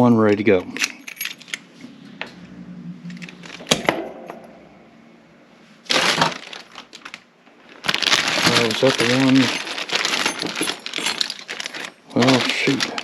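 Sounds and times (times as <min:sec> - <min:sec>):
faint steady hum: 0:00.0 - 0:12.2
keys scraping rattle: 0:00.7 - 0:01.7, 0:08.7 - 0:12.0
metal lock parts clicking: 0:00.8 - 0:01.6.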